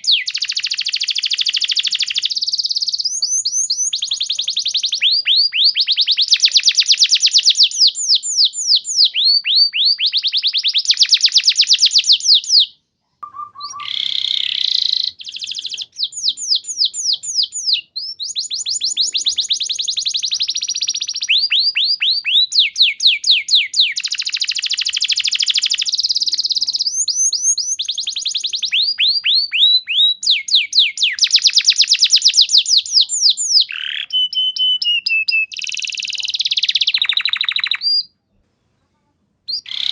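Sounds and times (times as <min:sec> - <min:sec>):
canary singing trills: 0:00.0 - 0:38.2, 0:39.5 - 0:39.9.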